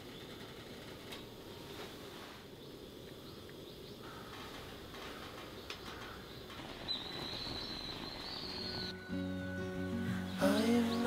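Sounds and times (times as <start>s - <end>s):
faint bird calls: 0.0s - 9.3s
thin high whistling call: 6.8s - 9.3s.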